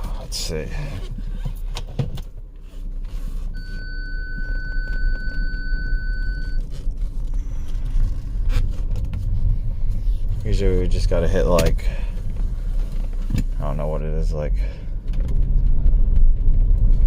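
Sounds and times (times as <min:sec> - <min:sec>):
electronic beep: 0:03.6 - 0:06.6
car engine idling: 0:03.6 - 0:17.0.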